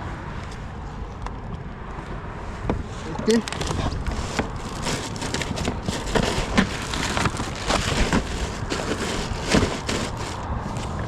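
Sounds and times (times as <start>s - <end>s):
wind rumbling on microphone: 0.0s - 11.0s
knocks clicks and rustles of gear: 2.6s - 11.0s.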